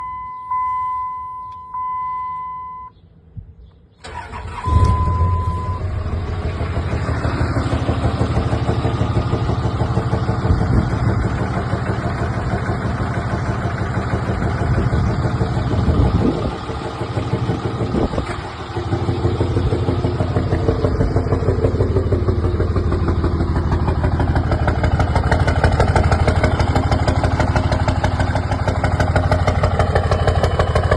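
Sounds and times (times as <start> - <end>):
electronic beeps: 0.0 - 2.9, 4.6 - 5.9
diesel engine cranking and idling: 3.8 - 30.9.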